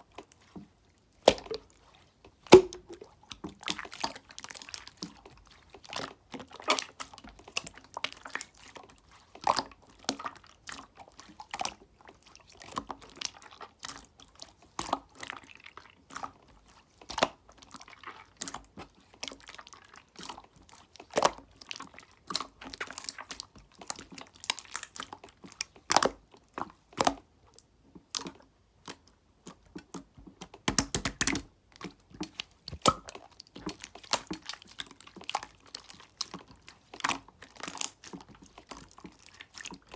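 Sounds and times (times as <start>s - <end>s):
slime clicking and popping: 1.3s - 1.6s, 2.5s - 3.0s, 30.6s - 31.5s, 32.7s - 34.5s.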